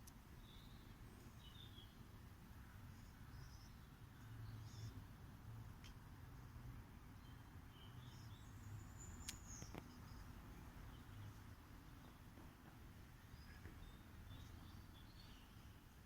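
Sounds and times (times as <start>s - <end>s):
faint bird chirps: 0.4s - 2.0s, 2.7s - 5.1s, 7.1s - 12.2s, 13.2s - 16.0s
faint clicks: 5.8s - 6.0s, 9.2s - 10.2s.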